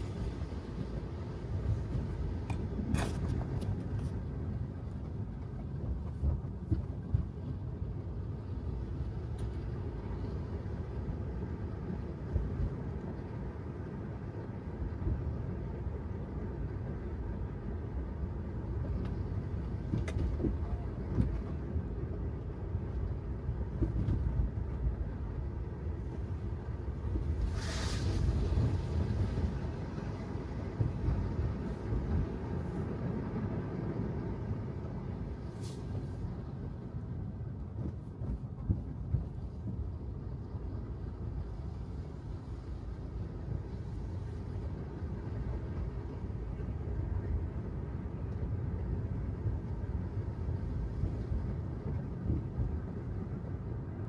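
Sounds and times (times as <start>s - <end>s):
tyre and road noise: 0.0s - 8.1s.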